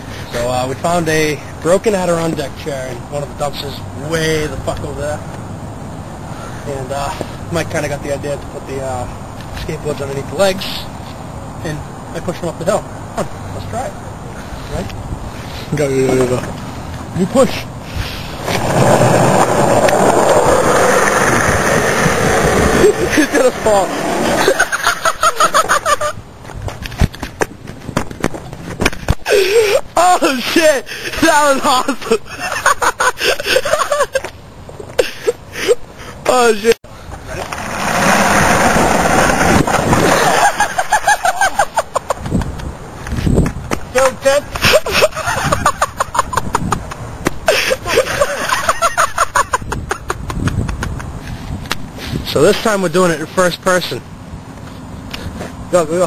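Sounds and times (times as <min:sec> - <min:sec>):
person laughing high-pitched: 0:24.4 - 0:26.2, 0:29.2 - 0:35.9, 0:40.2 - 0:42.3, 0:44.6 - 0:51.3.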